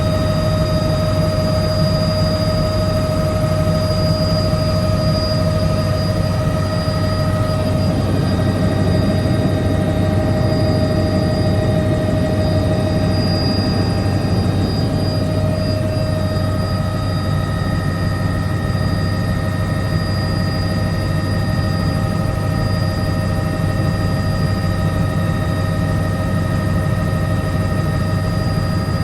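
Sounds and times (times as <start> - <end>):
high whine: 0.0 - 21.6
helicopter rotor and engine drone: 0.0 - 29.0.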